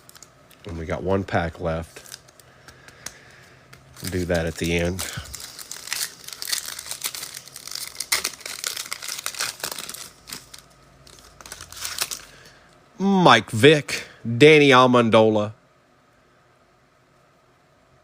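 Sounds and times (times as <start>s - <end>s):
plastic wrapper crinkling and tearing: 0.0s - 0.8s, 1.8s - 12.5s.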